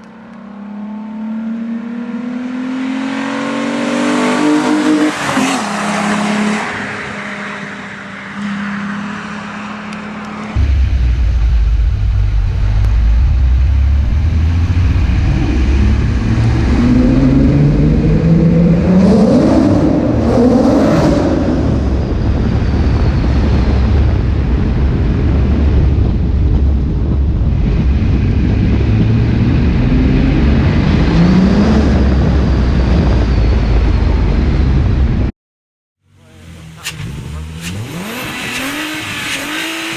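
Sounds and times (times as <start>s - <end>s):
car engine accelerating hard: 0.0s - 8.0s, 8.8s - 35.3s, 36.1s - 39.9s.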